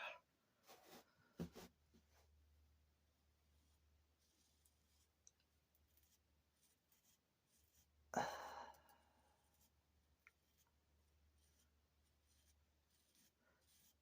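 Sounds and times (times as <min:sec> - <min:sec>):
breathy exhale: 0:08.2 - 0:09.0.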